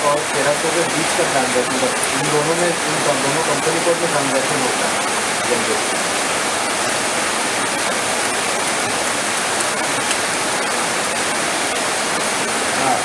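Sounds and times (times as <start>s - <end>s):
heavy rain falling: 0.0s - 13.0s
raindrop ticks: 9.5s - 10.7s.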